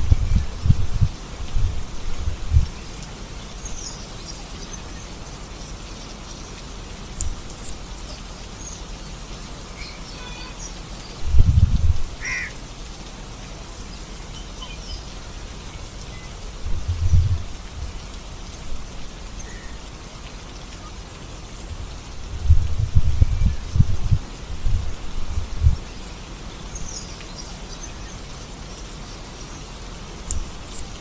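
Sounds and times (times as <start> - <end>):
steady rain: 0.0 - 31.0
faint bird chirps: 7.3 - 11.2, 12.2 - 12.6, 14.3 - 16.4.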